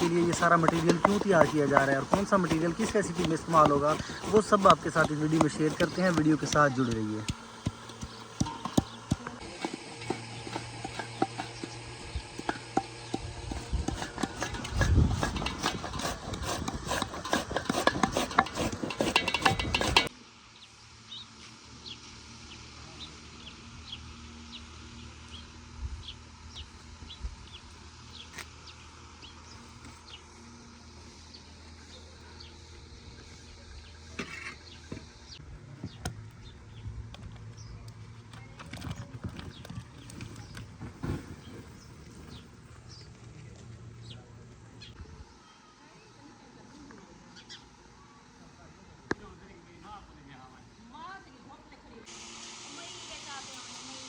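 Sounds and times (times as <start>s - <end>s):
rapid scraping and knocking: 0.0s - 20.1s.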